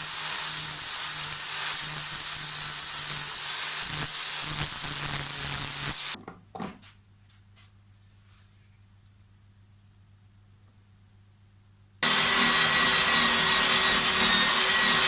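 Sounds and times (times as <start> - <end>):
power tool running: 0.0 - 6.2, 12.0 - 15.0.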